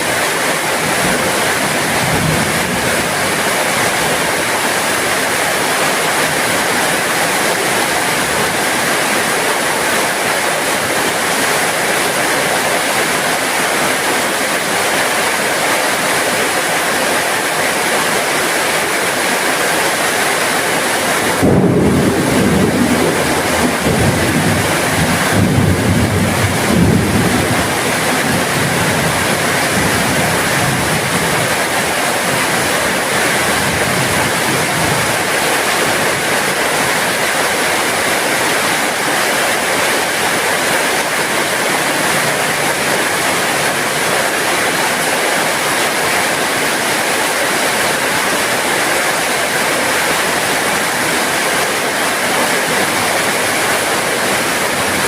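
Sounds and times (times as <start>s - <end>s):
heavy rain: 0.0s - 55.0s
thunder rumbling: 21.2s - 35.4s.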